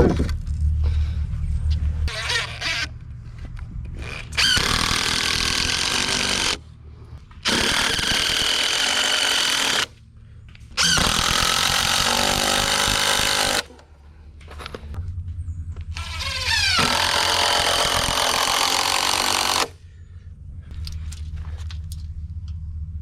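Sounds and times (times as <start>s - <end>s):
power screwdriver driving screws: 4.0s - 6.6s, 7.4s - 9.9s, 10.8s - 13.7s, 16.0s - 19.7s.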